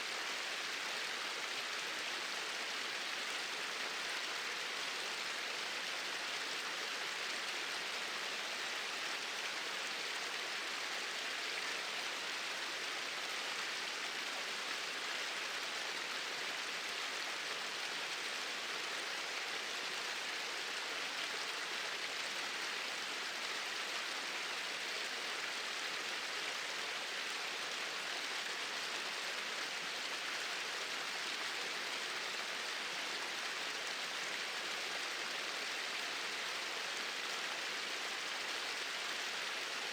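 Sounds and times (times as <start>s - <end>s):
small waterfall pouring: 0.0s - 39.9s.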